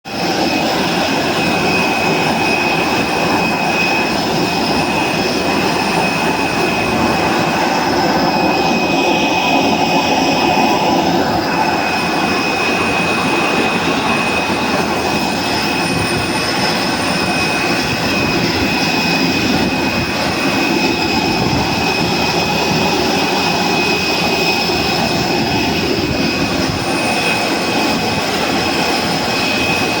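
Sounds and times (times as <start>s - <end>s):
jet engine rush and whine: 0.0s - 30.0s.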